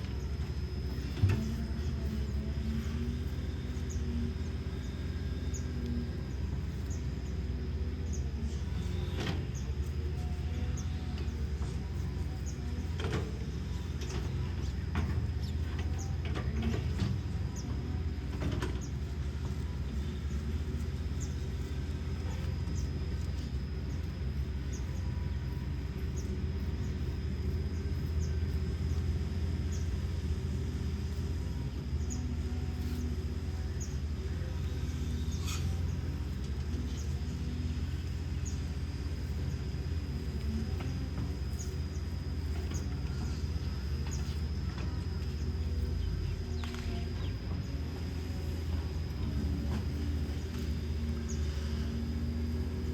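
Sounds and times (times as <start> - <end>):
diesel engine humming: 0.0 - 52.9.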